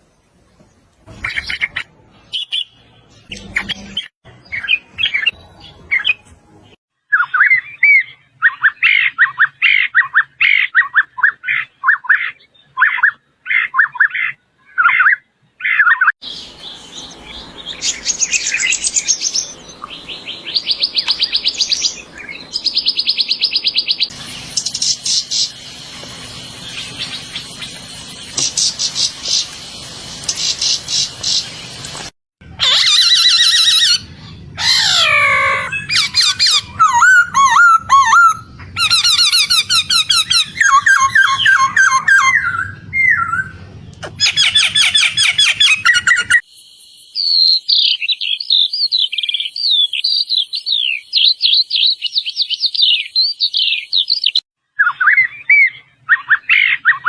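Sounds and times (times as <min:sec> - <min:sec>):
repeated whistled bird notes: 0:07.1 - 0:25.5, 0:32.8 - 0:57.0
bird chirps: 0:07.1 - 0:29.6, 0:32.7 - 0:57.0
background hiss: 0:24.1 - 0:32.1
buzzy bird trills: 0:32.8 - 0:43.4.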